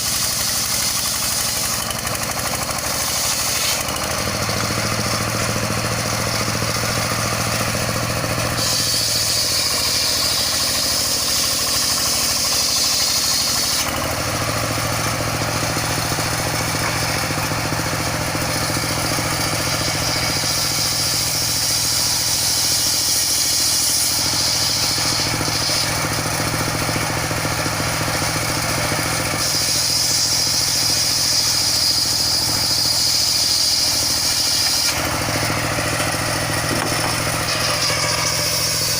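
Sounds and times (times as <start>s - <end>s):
power unit humming: 0.0s - 22.6s, 24.0s - 38.9s
saw blade cutting log whine: 0.0s - 38.9s.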